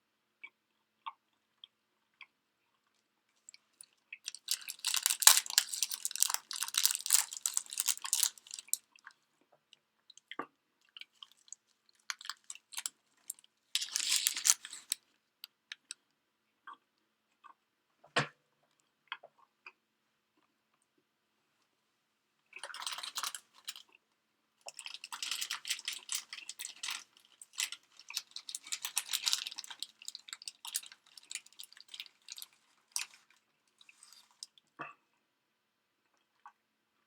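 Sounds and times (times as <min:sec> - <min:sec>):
person crunching food: 0:04.3 - 0:08.8, 0:11.2 - 0:15.0, 0:24.7 - 0:34.5.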